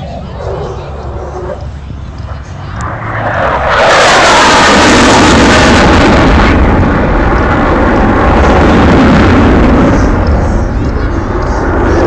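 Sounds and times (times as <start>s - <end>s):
aircraft roaring past low: 0.0s - 12.0s
aircraft whine falling in pitch: 0.0s - 12.0s.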